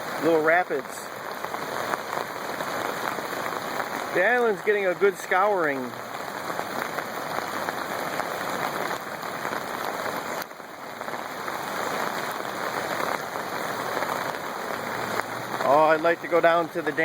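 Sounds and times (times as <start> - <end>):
river water rushing over rapids: 0.0 - 17.0.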